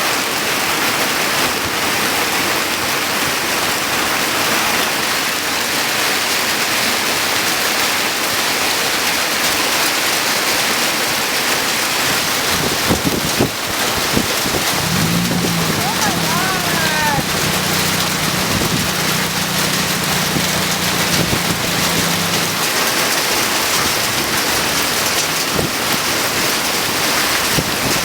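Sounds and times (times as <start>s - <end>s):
heavy rain hissing: 13.8s - 28.0s.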